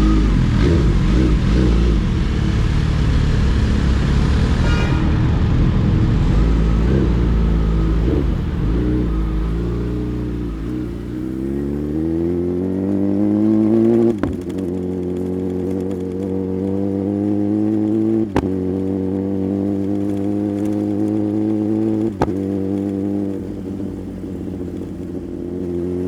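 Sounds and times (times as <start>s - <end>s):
motorcycle engine accelerating: 0.0s - 26.0s
motorcycle gear upshifts: 6.8s - 26.0s.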